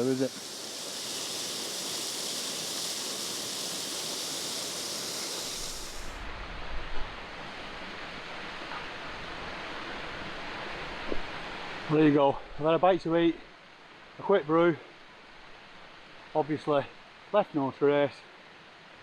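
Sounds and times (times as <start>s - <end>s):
stream rushing over waterfalls: 0.0s - 12.2s.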